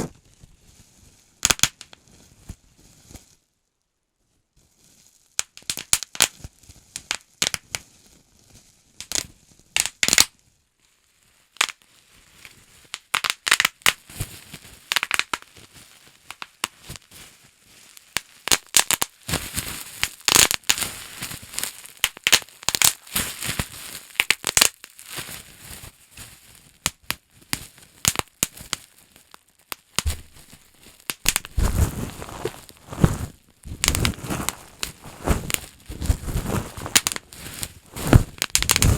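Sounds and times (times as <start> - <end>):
bubble wrap popping: 1.4 - 2.2, 5.2 - 7.9, 9.0 - 10.3, 11.6 - 17.1, 17.7 - 38.9
knocks and rustling: 30.0 - 30.5, 31.3 - 38.9.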